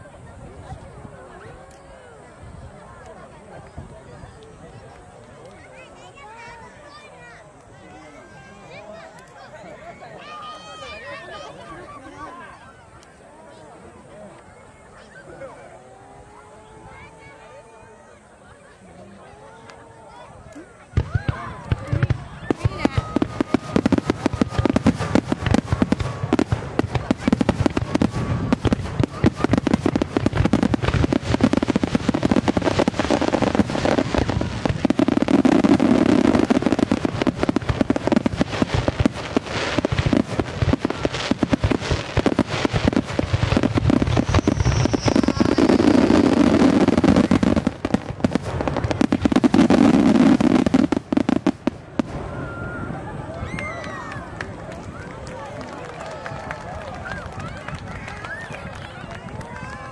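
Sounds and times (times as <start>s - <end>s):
fireworks bangs and crackling: 20.8s - 59.9s.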